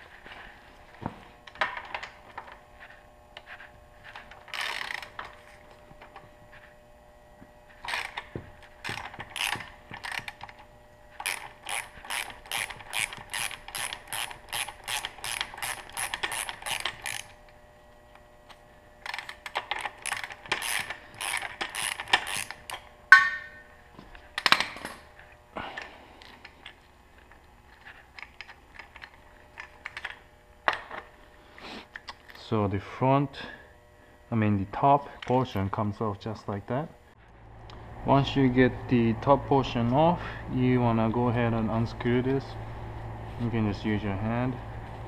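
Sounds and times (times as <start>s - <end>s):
ratchet wrench clicking: 4.5s - 5.1s, 8.8s - 10.4s, 11.2s - 17.4s, 19.1s - 23.3s.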